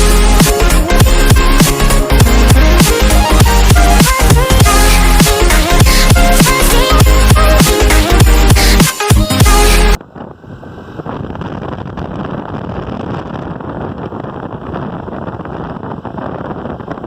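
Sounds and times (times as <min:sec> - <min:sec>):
background music: 0:00.0 - 0:10.0
wind on microphone: 0:09.5 - 0:17.0.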